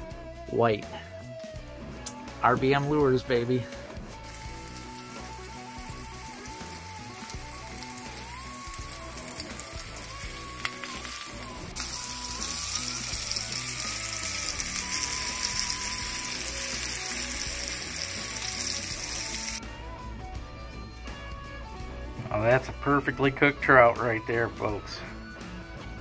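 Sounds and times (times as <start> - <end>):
fish frying in a pan: 4.2 - 19.6.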